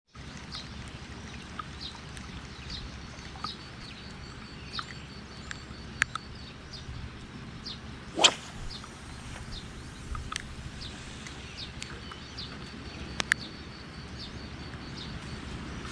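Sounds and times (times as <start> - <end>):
low rumble of wind or surf: 7.8 - 11.8
loud whip-like swish: 8.2 - 10.1
short bird chirps: 8.2 - 11.6.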